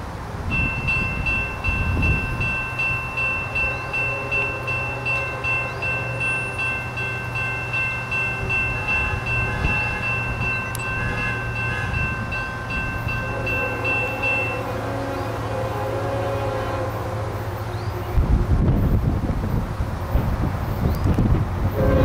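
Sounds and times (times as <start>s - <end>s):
diesel locomotive engine rumbling: 0.0s - 22.0s
bell ringing rapidly: 0.5s - 14.7s.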